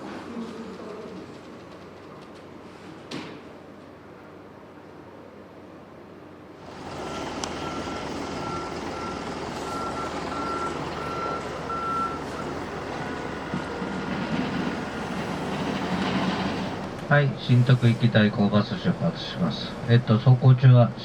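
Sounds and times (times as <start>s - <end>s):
bus engine running: 6.6s - 21.0s
high warning beeps: 6.8s - 14.2s.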